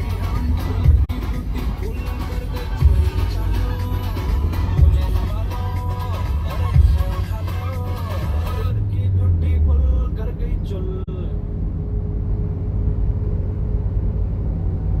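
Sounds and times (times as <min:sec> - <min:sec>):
music: 0:00.0 - 0:10.2
car engine and road noise: 0:00.0 - 0:15.0.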